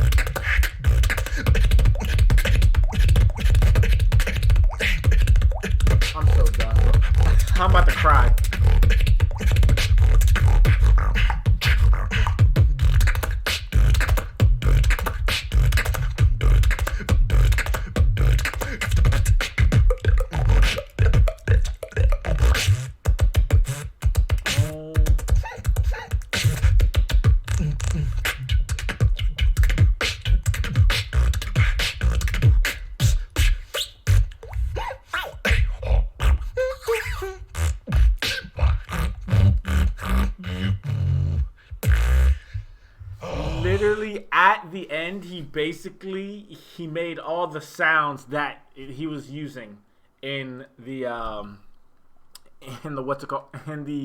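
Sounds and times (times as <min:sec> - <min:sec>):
person beatboxing: 0:00.0 - 0:45.5.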